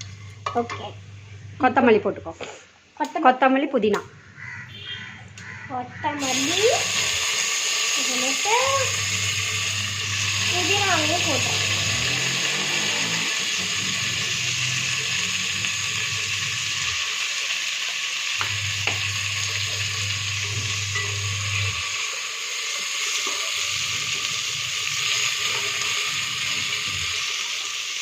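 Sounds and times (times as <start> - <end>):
leaves sizzling in hot oil: 6.2 - 28.0
low hum: 8.7 - 17.0, 18.4 - 22.0.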